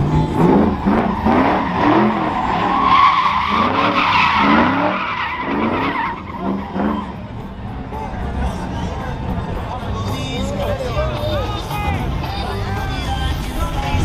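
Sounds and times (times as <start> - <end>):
vehicle tires squealing: 0.0 - 7.4.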